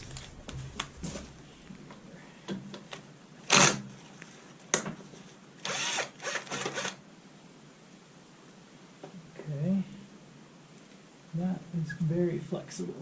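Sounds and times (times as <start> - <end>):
power drill bursts: 3.5 - 3.8, 5.6 - 7.0.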